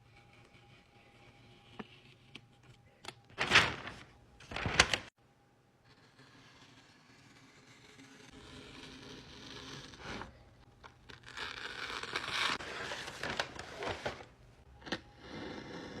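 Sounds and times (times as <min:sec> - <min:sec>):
paper tearing: 0:03.4 - 0:05.0, 0:11.1 - 0:14.2.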